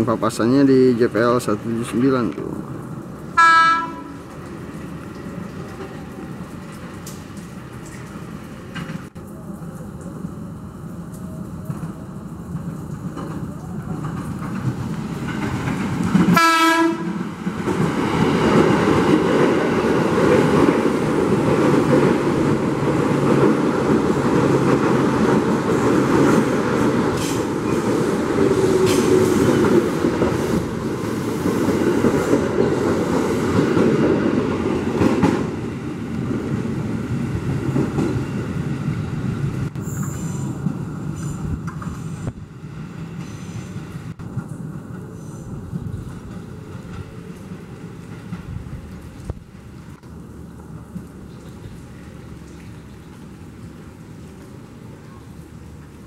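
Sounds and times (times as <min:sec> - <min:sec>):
train wheels rumbling on rails: 0:00.0 - 0:56.0
train horn blast: 0:03.4 - 0:04.3, 0:16.4 - 0:17.2.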